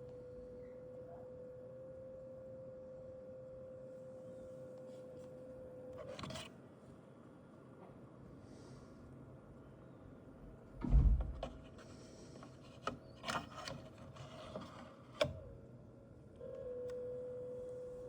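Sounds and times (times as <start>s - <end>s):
heavy knock: 10.8s - 11.6s.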